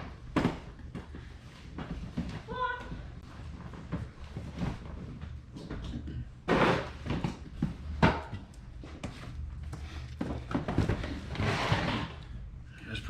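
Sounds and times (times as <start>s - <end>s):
boxes thudding on shelving: 0.0s - 1.0s
cardboard boxes knocking and rustling: 0.1s - 2.5s, 10.2s - 12.0s.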